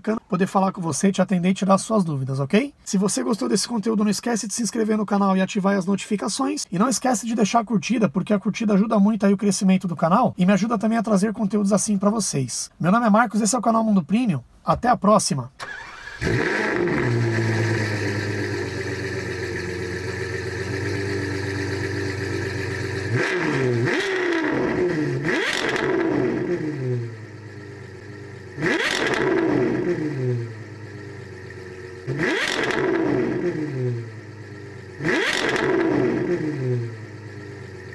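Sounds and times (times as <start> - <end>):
car engine revving: 15.6 - 37.9.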